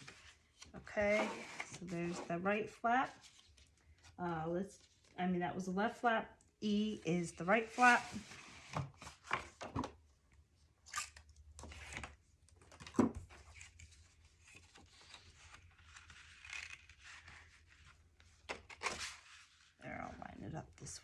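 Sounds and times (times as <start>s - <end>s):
paper rustling and sliding: 13.3s - 19.8s.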